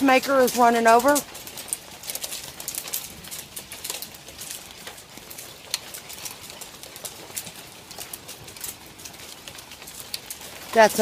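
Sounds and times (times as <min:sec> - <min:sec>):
hail on a tin roof: 0:00.0 - 0:11.0.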